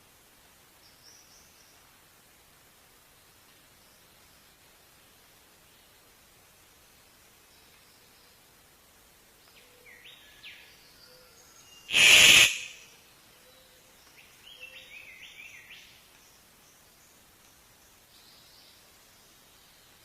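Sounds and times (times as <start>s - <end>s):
harsh noise burst: 11.9s - 12.9s.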